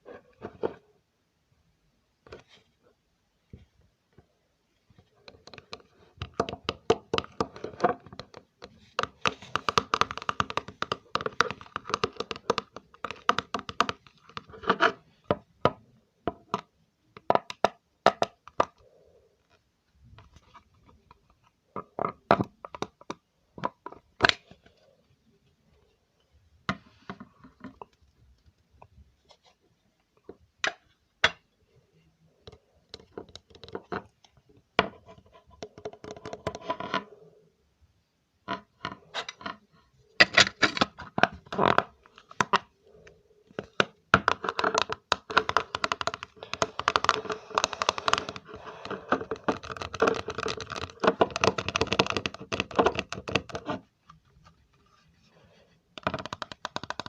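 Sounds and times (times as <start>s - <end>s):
crackling and tapping by hand: 4.9s - 24.9s, 32.3s - 37.1s, 40.2s - 57.0s.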